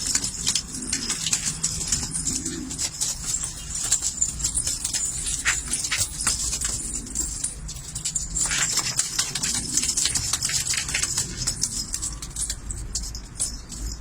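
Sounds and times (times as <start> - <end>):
pigeons clicking and fluttering: 0.0 - 14.0.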